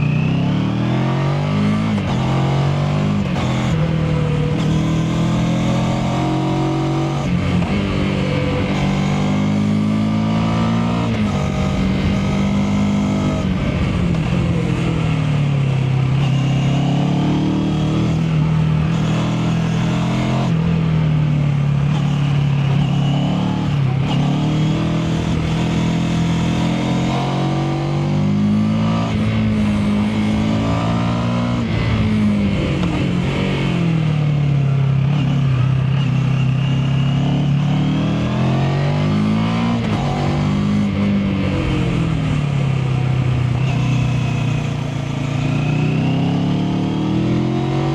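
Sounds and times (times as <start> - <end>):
motorcycle engine shifting gears: 0.0 - 47.9.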